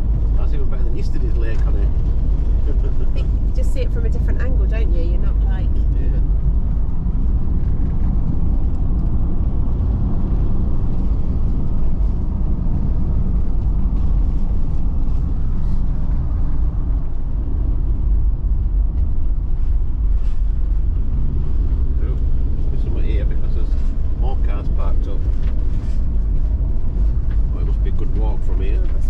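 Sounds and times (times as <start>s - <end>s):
engine and road rumble: 0.0s - 29.0s.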